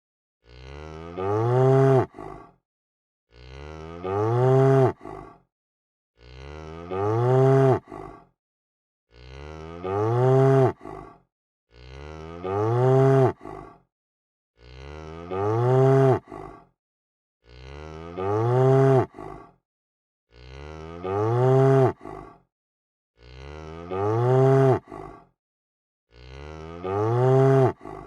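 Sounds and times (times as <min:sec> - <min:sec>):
cow mooing: 0:00.4 - 0:02.2, 0:03.3 - 0:05.0, 0:06.2 - 0:08.0, 0:09.1 - 0:10.9, 0:11.7 - 0:13.5, 0:14.6 - 0:16.4, 0:17.5 - 0:19.2, 0:20.3 - 0:22.1, 0:23.2 - 0:25.0, 0:26.1 - 0:27.9.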